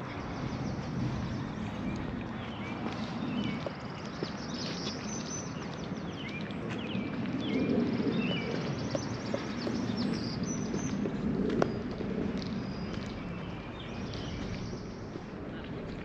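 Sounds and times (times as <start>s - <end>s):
small songbirds chirping: 0.0s - 15.7s
low background rumble: 0.0s - 16.0s.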